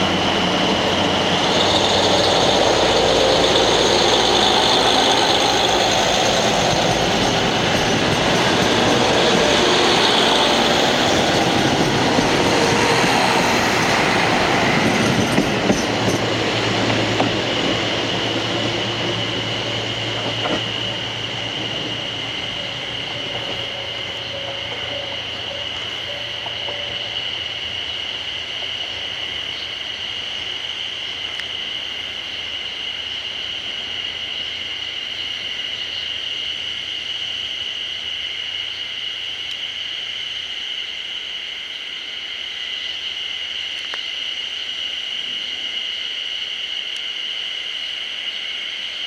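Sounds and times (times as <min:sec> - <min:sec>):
high-pitched drone: 0:00.0 - 0:27.9
railcar engine rumble: 0:00.0 - 0:41.7.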